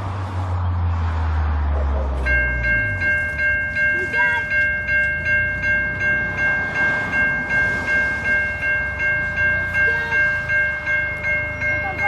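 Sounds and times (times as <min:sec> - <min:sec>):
level crossing warning bell ringing: 0:02.2 - 0:12.0.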